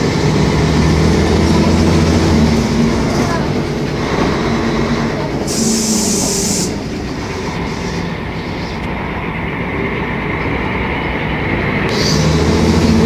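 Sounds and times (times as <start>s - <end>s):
bus engine rumbling: 0.0s - 13.0s
sharp air hiss: 5.5s - 6.8s.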